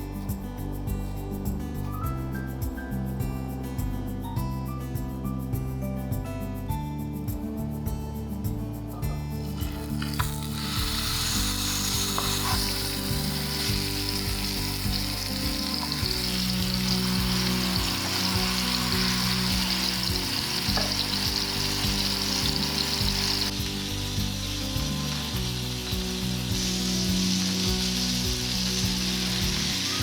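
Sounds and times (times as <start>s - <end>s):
background music: 0.0s - 30.0s
food sizzling in a pan: 9.4s - 30.0s.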